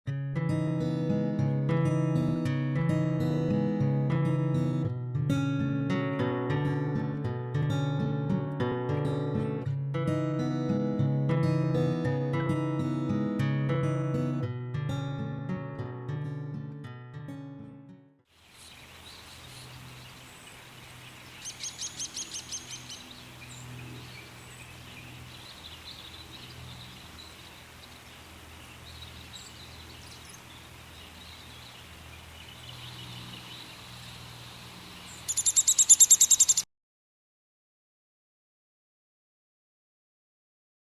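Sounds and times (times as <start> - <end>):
songbird trills: 18.4 - 36.6.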